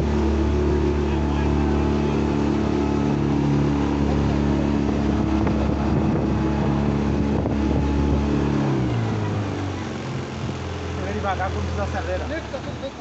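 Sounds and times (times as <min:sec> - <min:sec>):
outboard motor running: 0:00.0 - 0:13.0
wind on microphone: 0:01.8 - 0:11.0.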